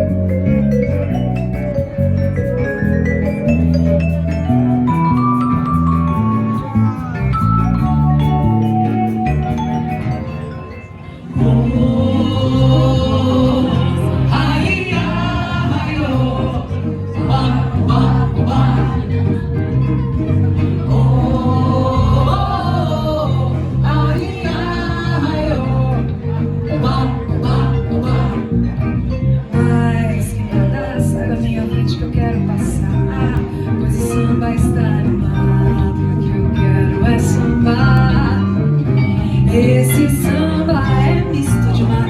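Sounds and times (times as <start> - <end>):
instrumental melody line: 0.0 - 42.0
sustained low bass notes: 0.0 - 42.0
person singing: 11.3 - 19.6.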